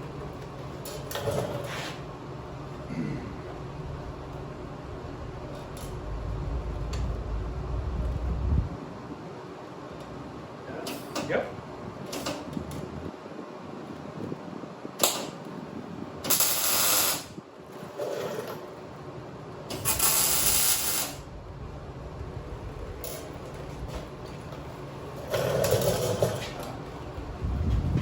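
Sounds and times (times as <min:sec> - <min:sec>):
welding crackling and hissing: 0:16.3 - 0:17.3, 0:19.7 - 0:21.3.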